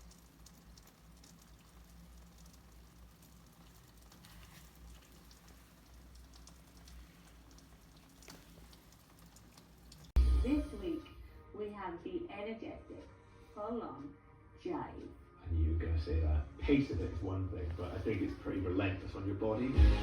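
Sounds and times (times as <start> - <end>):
soft clicks and crackle: 0.0 - 10.2.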